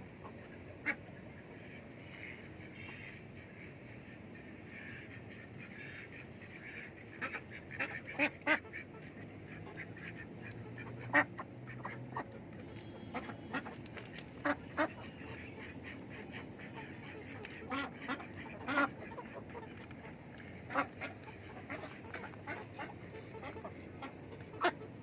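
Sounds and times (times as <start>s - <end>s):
ducks quacking: 0.2s - 12.3s, 12.9s - 13.8s, 14.4s - 25.0s.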